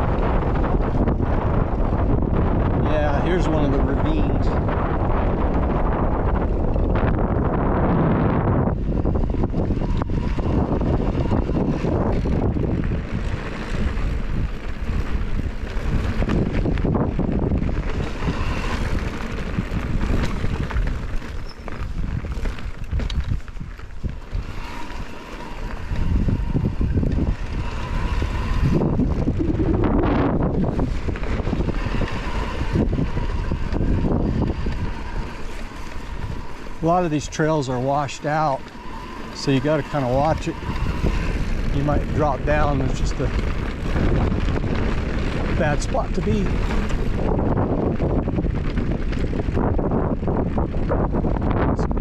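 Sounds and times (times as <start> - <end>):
wind buffeting microphone: 0.0 - 52.0
bike knocks and rattles: 8.8 - 36.4.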